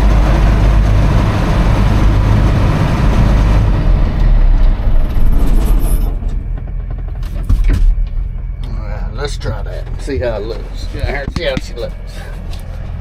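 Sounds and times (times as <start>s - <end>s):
tractor diesel engine humming: 0.0s - 13.0s
clunk: 4.6s - 8.7s.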